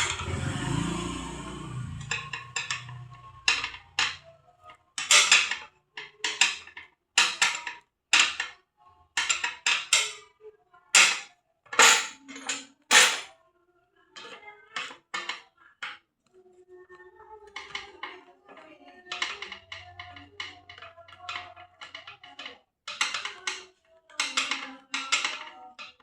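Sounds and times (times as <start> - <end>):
metal tools clanking: 0.0 - 1.1, 1.8 - 4.3, 5.0 - 8.5, 11.0 - 13.3.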